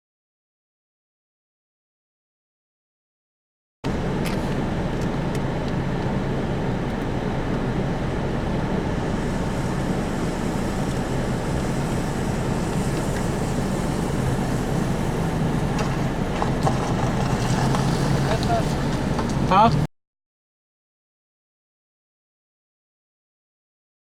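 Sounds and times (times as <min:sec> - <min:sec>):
road and engine noise inside car: 0:03.8 - 0:19.9.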